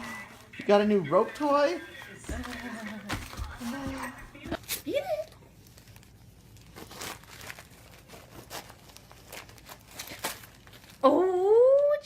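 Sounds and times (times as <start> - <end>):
wrapping paper crinkling and tearing: 0.0 - 3.9, 4.5 - 11.4.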